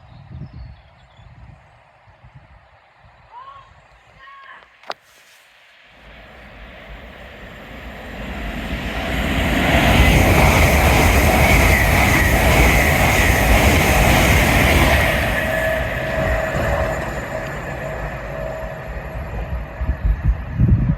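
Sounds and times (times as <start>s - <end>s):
train passing at speed: 5.7s - 20.9s.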